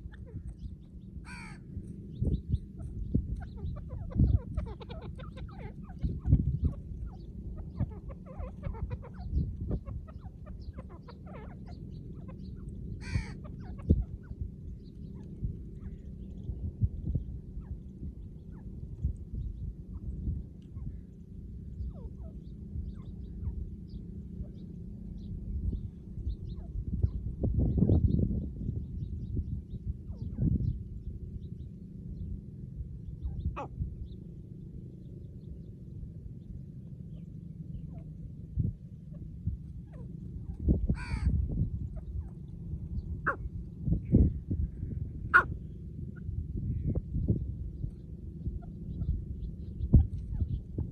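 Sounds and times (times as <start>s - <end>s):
low rumble: 0.0s - 50.9s
small birds chirping: 0.0s - 50.9s
harsh rasping bird call: 1.2s - 1.6s, 13.0s - 13.4s, 41.0s - 41.3s.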